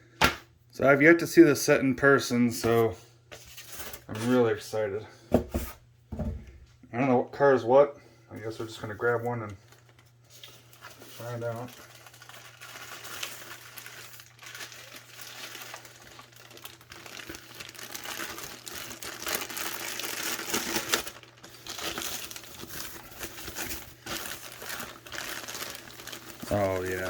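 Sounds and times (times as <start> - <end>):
packaging crinkling and rustling: 8.6 - 27.0.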